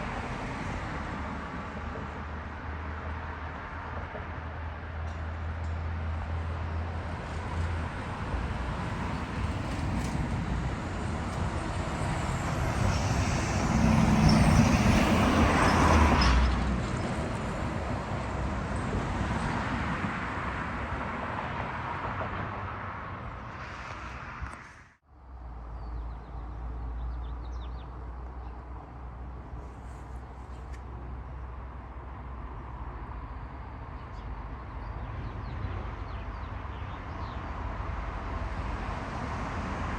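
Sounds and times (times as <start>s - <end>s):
low traffic rumble: 0.0s - 39.9s
vehicle passing close by: 6.4s - 25.0s.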